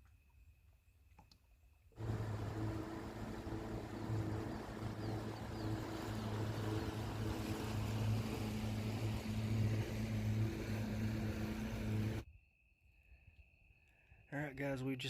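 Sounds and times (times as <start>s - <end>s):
hiss of wind and water: 2.0s - 12.2s
outboard motor running: 2.0s - 12.2s.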